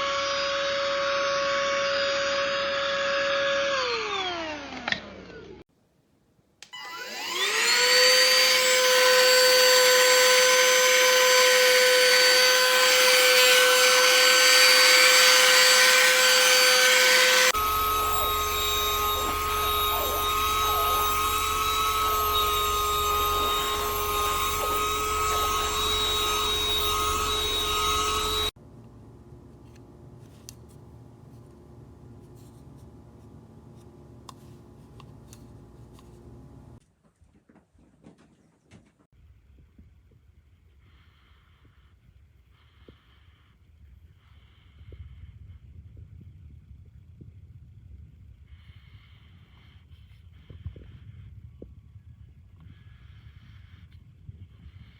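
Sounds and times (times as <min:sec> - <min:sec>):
handheld vacuum motor whine: 0:00.0 - 0:05.6, 0:06.6 - 0:28.6.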